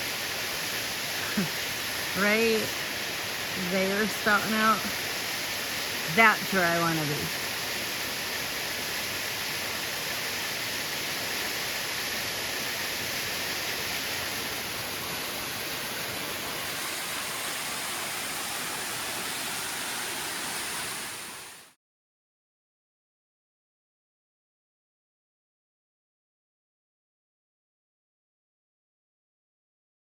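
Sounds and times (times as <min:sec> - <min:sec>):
waterfall roaring: 0:00.0 - 0:21.7.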